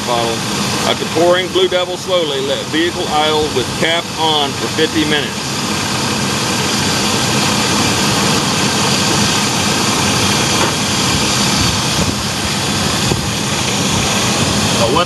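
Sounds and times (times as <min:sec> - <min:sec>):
van engine idling: 0:00.0 - 0:15.0.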